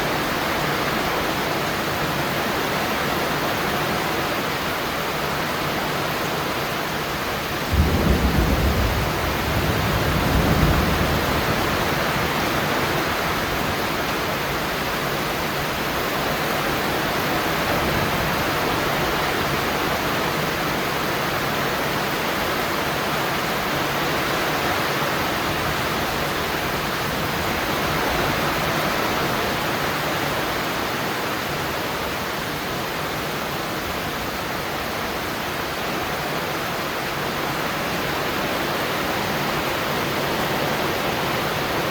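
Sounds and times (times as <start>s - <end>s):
steady rain falling: 0.0s - 41.9s
thunder rumbling: 7.5s - 14.2s.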